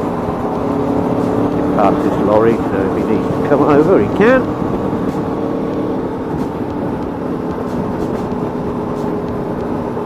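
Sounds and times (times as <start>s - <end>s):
rushing noise: 0.0s - 5.6s
motorcycle engine cruising: 0.0s - 10.0s.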